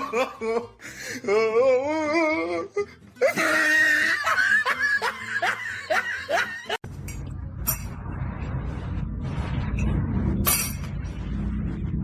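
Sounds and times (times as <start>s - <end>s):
person laughing: 0.0s - 6.8s.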